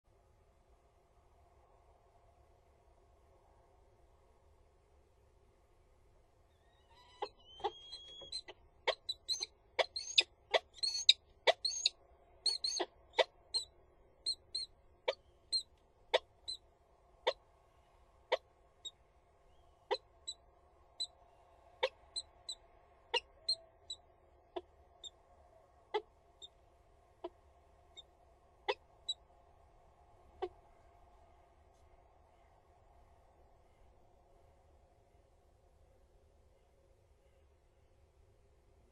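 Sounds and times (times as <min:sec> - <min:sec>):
falcon calls: 0:06.6 - 0:11.9, 0:12.5 - 0:13.7.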